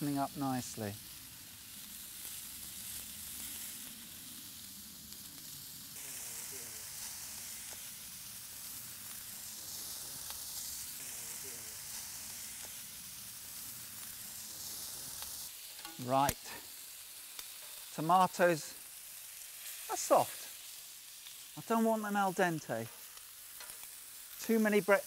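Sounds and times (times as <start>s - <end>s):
food sizzling on a grill: 0.0s - 25.0s
fat crackling: 5.0s - 25.0s.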